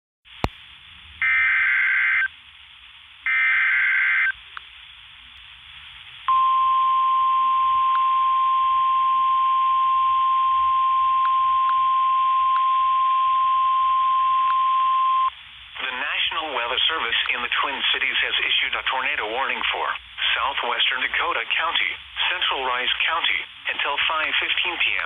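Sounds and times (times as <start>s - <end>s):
screechy digital data bursts: 1.2s - 2.3s, 3.3s - 4.3s
steady warning alarm tone: 6.3s - 15.3s.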